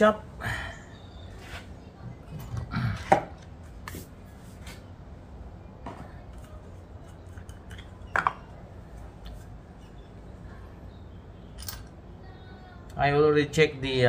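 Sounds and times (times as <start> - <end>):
metal clinks and taps: 11.6 - 11.9.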